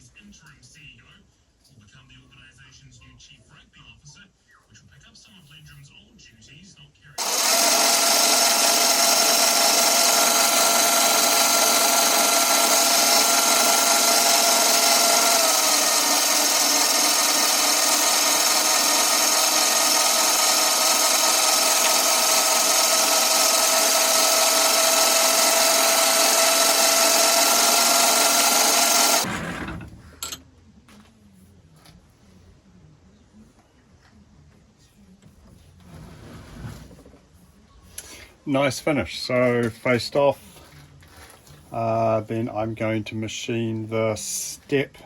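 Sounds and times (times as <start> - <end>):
lathe cutting with whine: 7.2 - 29.9.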